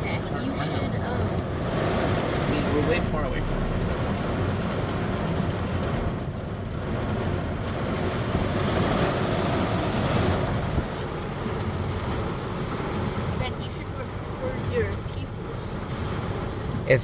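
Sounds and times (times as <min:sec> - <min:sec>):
rain rushing on car: 0:00.0 - 0:17.0
deep thunder rumble: 0:01.2 - 0:13.3.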